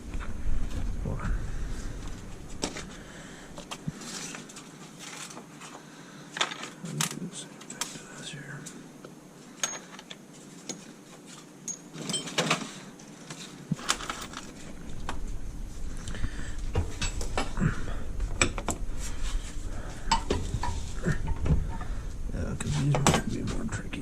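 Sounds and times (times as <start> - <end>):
low rumble: 0.0 - 4.0, 14.6 - 24.0
metal tools clinking: 9.6 - 10.9, 11.6 - 12.7, 13.8 - 14.7.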